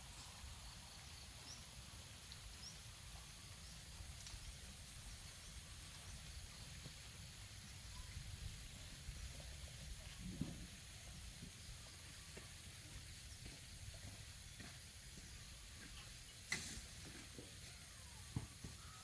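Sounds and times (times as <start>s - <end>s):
faint bird chirps: 7.6s - 10.2s, 17.4s - 19.0s.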